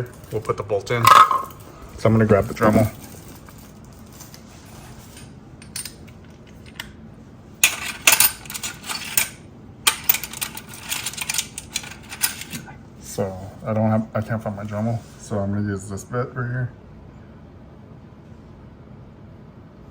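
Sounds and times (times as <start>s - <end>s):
small metal tools clinking: 7.6s - 12.7s.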